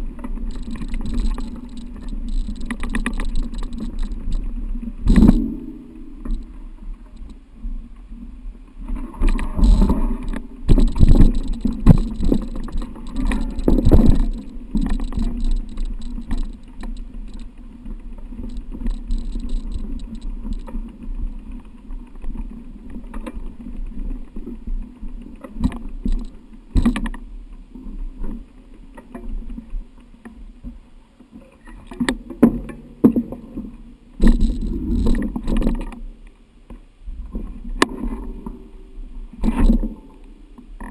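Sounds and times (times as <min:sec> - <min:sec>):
mountain bike rattling on trail: 0:00.0 - 0:07.4, 0:09.0 - 0:27.3, 0:34.2 - 0:36.0.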